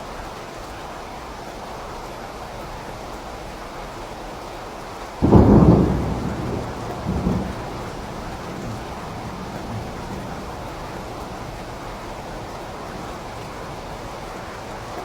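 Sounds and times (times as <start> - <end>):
steady rain: 0.0 - 15.0
thunder clap and rumble: 5.2 - 15.0.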